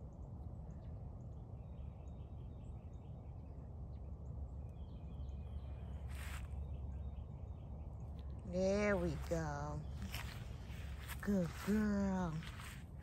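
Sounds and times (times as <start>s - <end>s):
faint birds chirping: 0.0s - 13.0s
rustling: 9.9s - 13.0s.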